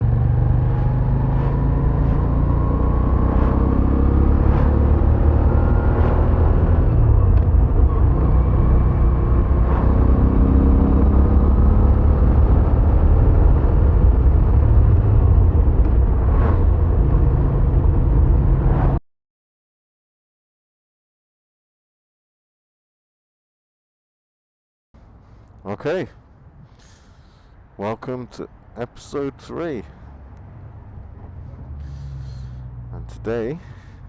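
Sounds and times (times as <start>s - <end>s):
motorcycle engine rumbling: 25.0s - 34.0s.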